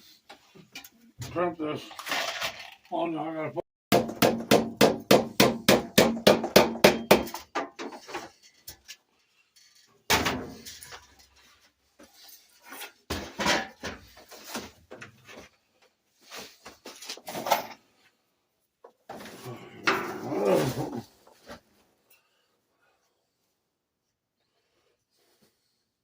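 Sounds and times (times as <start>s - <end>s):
plumbing tools clanking: 19.1s - 20.3s.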